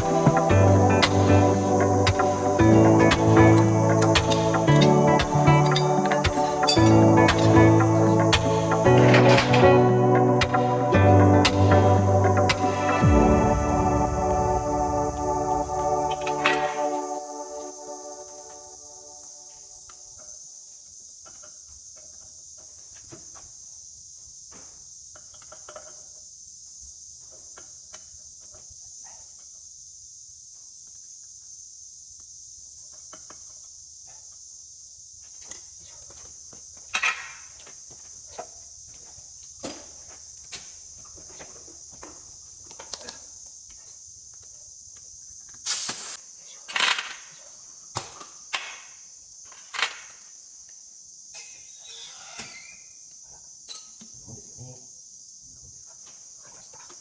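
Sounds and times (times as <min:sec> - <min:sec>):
insects chirping: 0:00.0 - 0:57.0.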